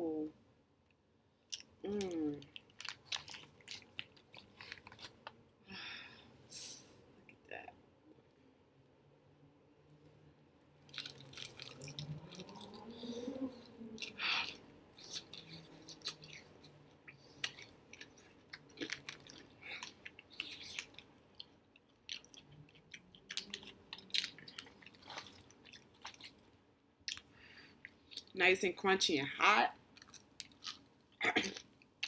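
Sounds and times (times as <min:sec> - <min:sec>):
crunching fried chicken: 0:02.4 - 0:05.3, 0:10.8 - 0:13.1, 0:14.0 - 0:27.3, 0:30.0 - 0:30.9.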